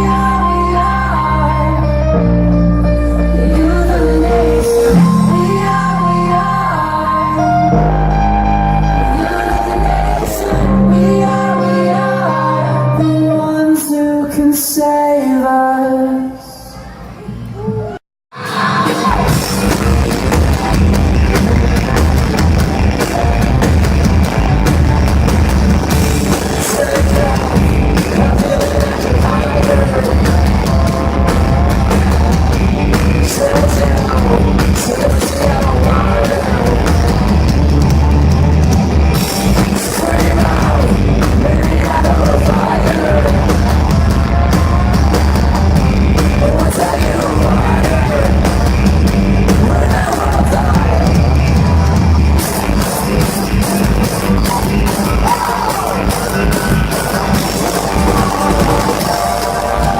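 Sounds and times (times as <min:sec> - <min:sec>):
heavy bass: 0:00.0 - 0:13.7, 0:17.6 - 0:59.9
electric guitar: 0:00.0 - 0:14.8, 0:17.3 - 0:59.9
person singing: 0:00.0 - 0:22.4, 0:25.8 - 0:59.9
drum kit: 0:18.3 - 0:59.9.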